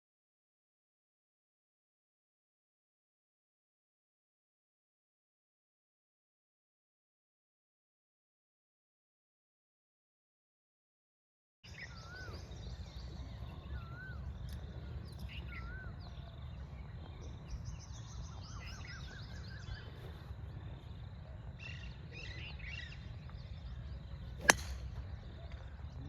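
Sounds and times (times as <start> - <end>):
wavy bird whistle: 11.7 - 25.8
birds chirping and calling: 11.7 - 26.0
steady low rumble: 12.2 - 26.0.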